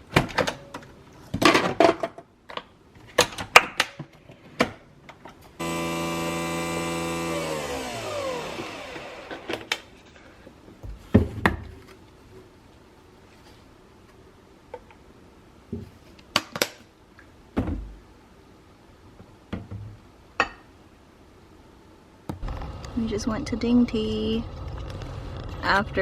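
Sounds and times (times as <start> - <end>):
kitchen appliance motor running: 5.6 - 9.8, 22.4 - 23.0.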